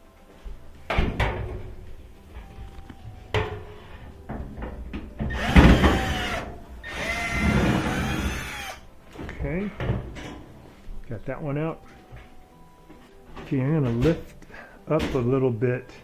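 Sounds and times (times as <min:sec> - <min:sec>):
screw rasping against metal: 0:05.2 - 0:08.8
screwdriver clicking and knocking: 0:05.2 - 0:08.8.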